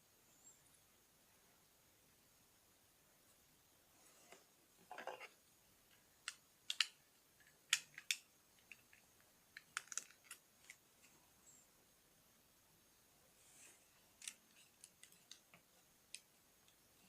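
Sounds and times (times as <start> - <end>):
plastic bricks clicking: 6.2 - 10.8
plastic pieces rustling: 9.6 - 10.8.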